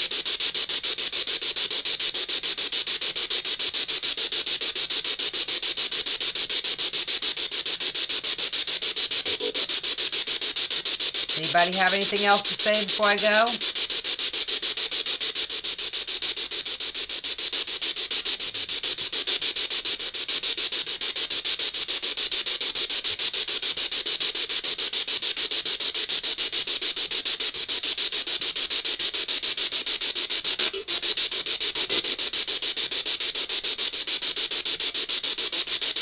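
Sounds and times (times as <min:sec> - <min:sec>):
pulsing radio static: 0:11.4 - 0:13.6.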